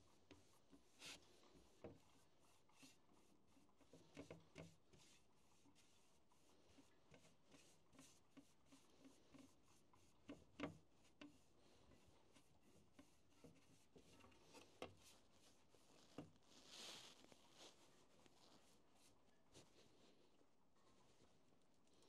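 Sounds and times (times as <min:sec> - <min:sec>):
hand rubbing oil into wood: 0:00.0 - 0:20.0.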